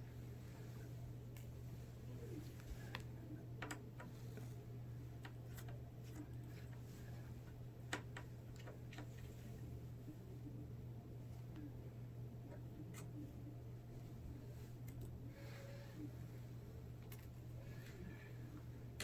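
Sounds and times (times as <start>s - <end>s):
low hum: 0.0s - 19.0s
small clicks and taps: 2.9s - 4.1s.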